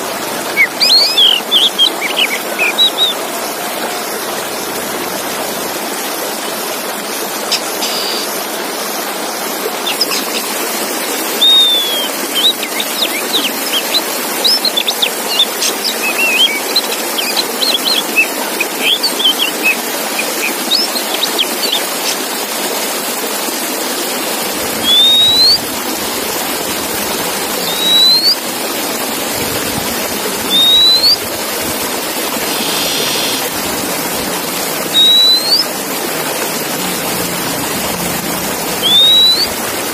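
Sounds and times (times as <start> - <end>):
running water: 0.0 - 39.9
bird singing chirps and whistles: 0.5 - 3.2, 7.5 - 8.4, 9.8 - 10.6, 11.2 - 22.2, 24.8 - 25.7, 27.6 - 28.4, 30.4 - 31.3, 32.5 - 33.5, 34.8 - 35.7, 38.8 - 39.6.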